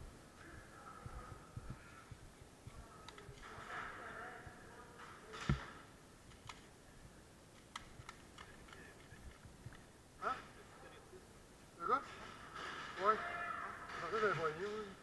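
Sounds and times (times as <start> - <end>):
sharp clicks: 7.5 - 9.8.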